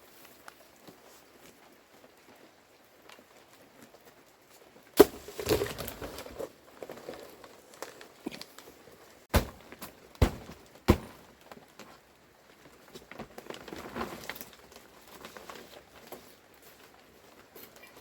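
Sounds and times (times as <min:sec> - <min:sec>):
shuffling and rustling: 0:04.1 - 0:18.0
sharp knocks of objects: 0:09.3 - 0:11.3.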